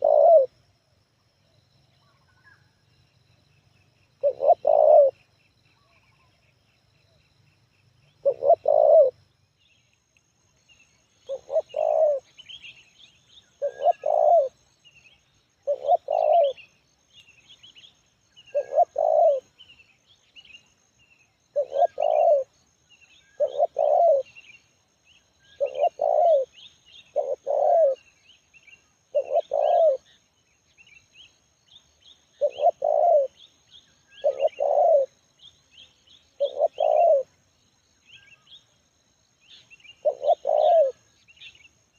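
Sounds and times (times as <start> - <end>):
dove cooing: 0.0 - 0.5, 4.2 - 5.2, 8.2 - 9.2, 11.3 - 12.4, 13.6 - 14.6, 15.6 - 16.7, 18.5 - 19.5, 21.5 - 22.5, 23.3 - 24.4, 25.6 - 28.0, 29.1 - 30.1, 32.4 - 33.4, 34.1 - 35.2, 36.4 - 37.3, 40.0 - 41.0
small birds chirping faintly: 0.0 - 41.9.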